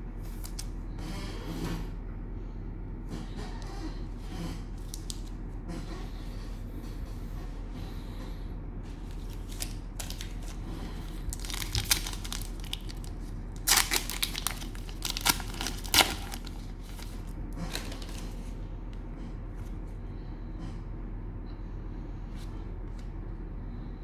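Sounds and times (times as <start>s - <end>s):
cellophane wrapper crinkling: 4.8s - 5.3s, 9.0s - 18.5s.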